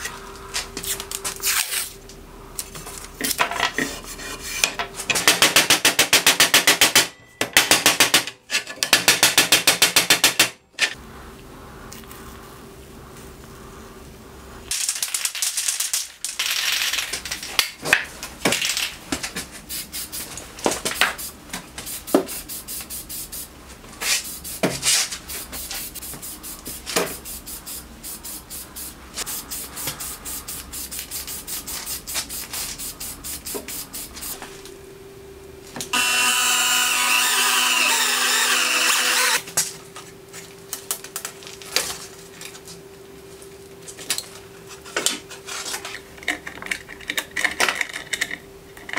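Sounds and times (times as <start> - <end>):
paint spraying hiss: 19.7 - 20.3, 21.0 - 23.5, 25.3 - 34.4.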